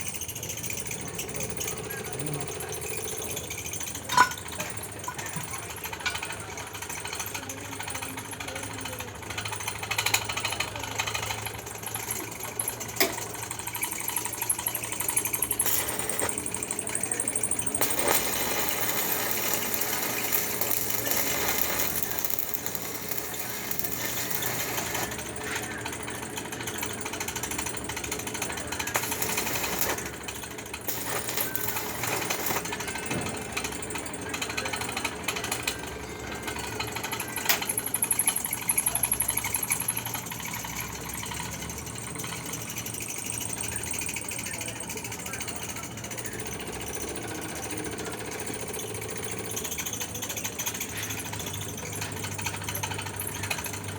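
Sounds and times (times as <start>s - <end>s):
arc welding crackle and buzz: 10.1s - 35.8s.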